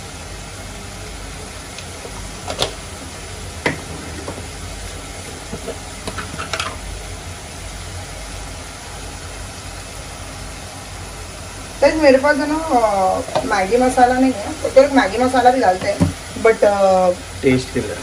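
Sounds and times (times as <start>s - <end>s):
masala sizzling in a pan: 0.0s - 18.0s
steady low hum: 0.0s - 18.0s
kitchen utensils clinking: 5.4s - 6.9s.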